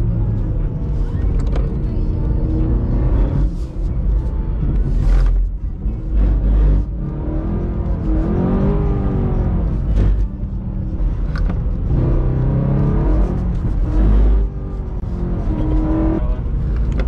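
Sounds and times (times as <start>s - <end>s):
car engine revving from inside: 6.0s - 17.0s.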